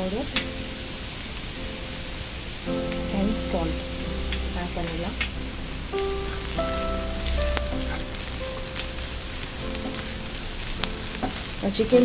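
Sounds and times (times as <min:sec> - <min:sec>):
onions sizzling in hot oil: 0:00.0 - 0:12.0
soft background music: 0:00.0 - 0:12.0.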